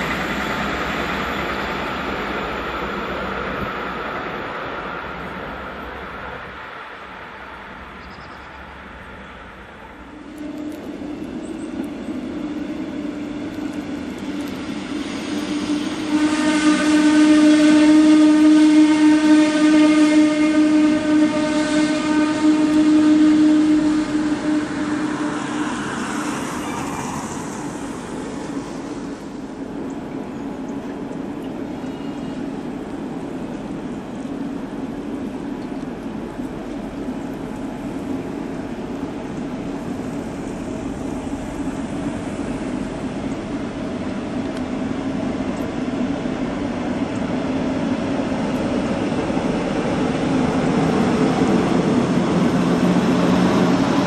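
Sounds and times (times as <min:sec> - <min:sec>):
train running past: 0:00.0 - 0:54.0
humming whine: 0:09.9 - 0:19.2.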